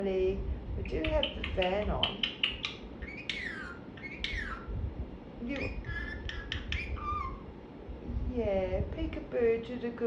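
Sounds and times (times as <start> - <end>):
fan humming: 0.0 - 10.0
parrot calling: 0.9 - 4.8, 5.4 - 7.6.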